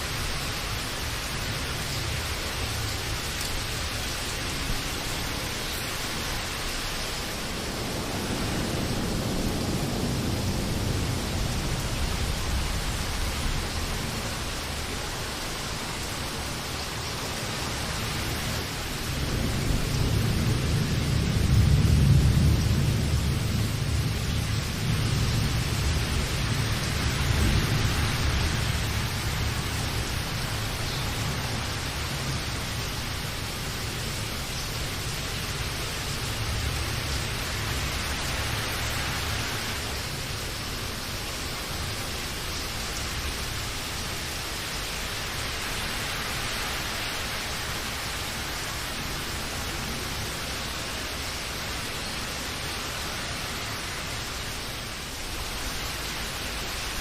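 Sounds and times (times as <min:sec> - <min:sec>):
rain hissing: 0:00.0 - 0:57.0
thunder rumble: 0:04.5 - 0:17.1, 0:17.7 - 0:40.3.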